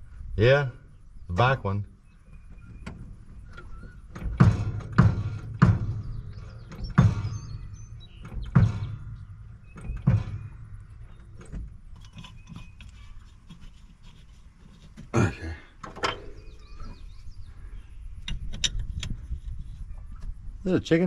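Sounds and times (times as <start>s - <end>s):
heavy ringing thunks: 2.4s - 12.4s, 15.2s - 17.7s.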